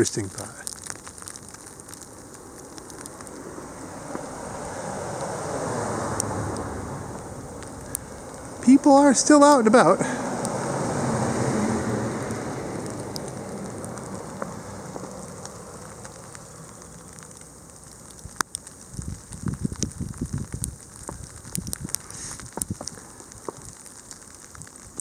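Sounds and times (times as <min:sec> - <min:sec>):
car driving on snowy road: 0:00.0 - 0:25.0
light ticks: 0:06.1 - 0:08.2, 0:12.2 - 0:25.0.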